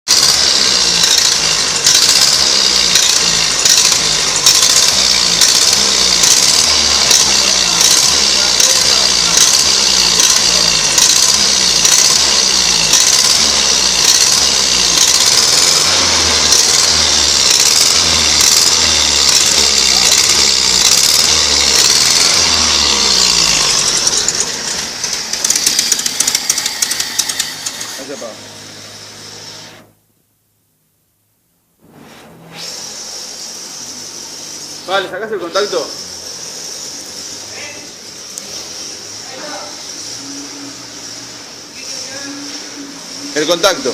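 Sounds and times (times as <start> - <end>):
petrol engine running: 0.1 - 29.7.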